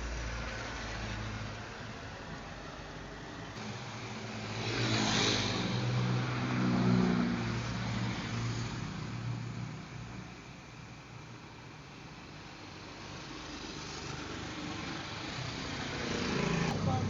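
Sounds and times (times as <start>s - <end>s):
vehicle engine passing by: 0.0s - 10.2s, 13.3s - 17.0s.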